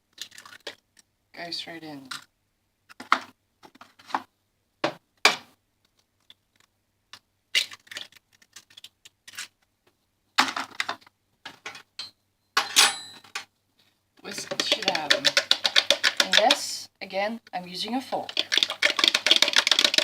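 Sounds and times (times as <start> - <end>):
eggshells crackling: 0.0 - 1.1, 5.9 - 9.6, 14.2 - 16.8, 17.5 - 20.0
eggs cracking against jug: 0.1 - 1.1, 6.2 - 9.5, 14.2 - 16.8, 18.2 - 20.0.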